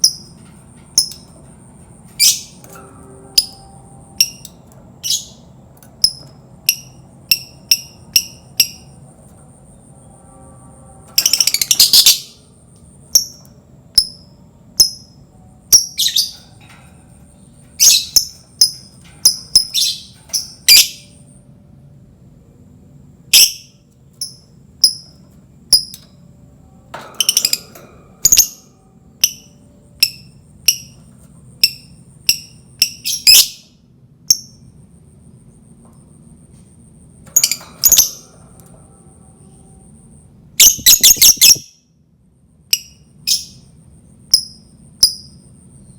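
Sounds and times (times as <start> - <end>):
lovebird chirping: 2.2 - 2.6, 4.2 - 5.4, 11.2 - 12.4, 14.0 - 16.5, 17.7 - 21.2, 23.4 - 25.1, 31.6 - 34.6, 40.6 - 41.8, 42.8 - 43.7.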